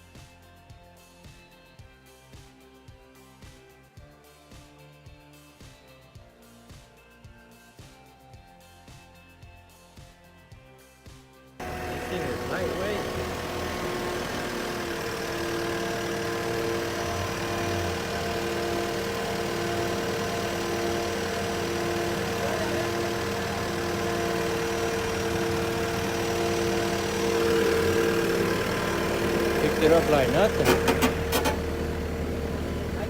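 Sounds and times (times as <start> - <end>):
heavy machine engine running: 11.6 - 33.0.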